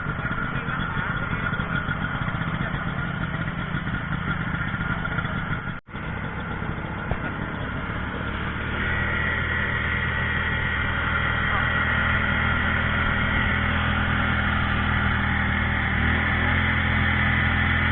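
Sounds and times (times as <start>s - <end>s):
engine running: 0.0s - 17.9s
steady hum: 6.0s - 17.9s.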